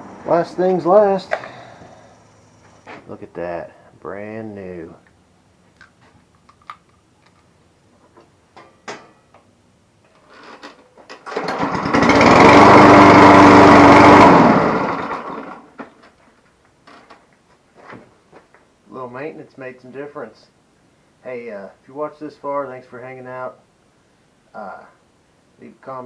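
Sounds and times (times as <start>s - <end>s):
lawnmower engine running: 10.4s - 15.8s.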